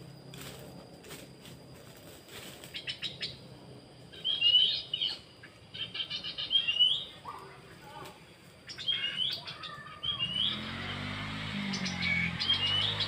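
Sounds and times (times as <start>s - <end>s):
bird chirping and whistling: 4.1s - 7.2s, 8.7s - 10.9s, 11.6s - 13.0s.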